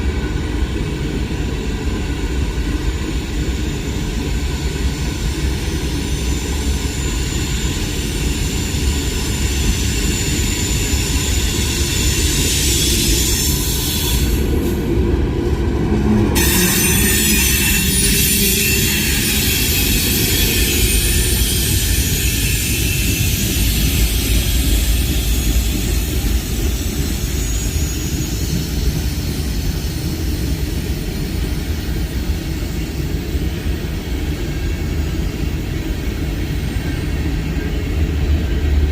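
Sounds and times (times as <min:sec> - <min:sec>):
freight train rumbling: 0:00.0 - 0:38.9
high-pitched wheel squeal: 0:16.4 - 0:26.1.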